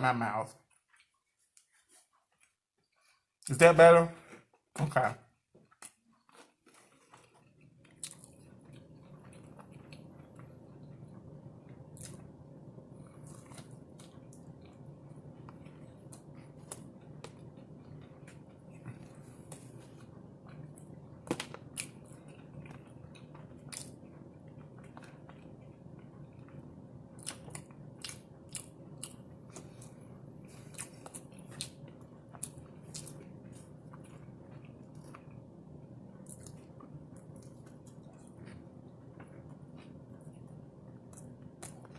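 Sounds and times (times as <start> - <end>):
person chewing and biting: 5.7 - 10.5, 13.0 - 35.5
steady low hum: 6.7 - 41.9.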